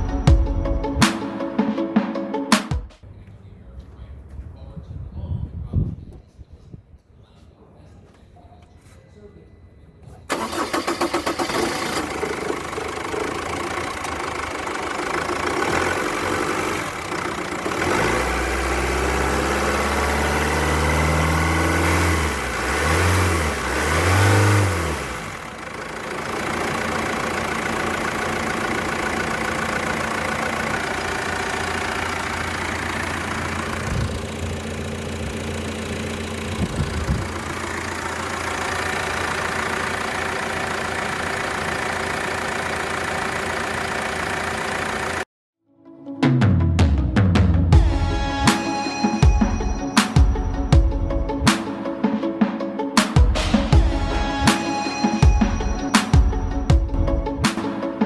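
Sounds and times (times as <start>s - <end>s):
engine idling and revving: 10.3s - 45.3s.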